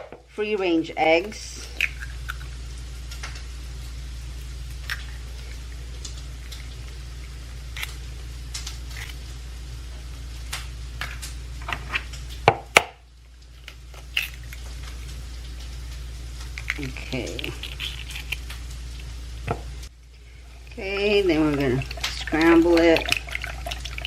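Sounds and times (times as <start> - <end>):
low hum: 0.0 - 12.4
eggs cracking into a bowl: 1.7 - 3.4, 13.6 - 15.2, 16.4 - 19.7, 20.7 - 24.0.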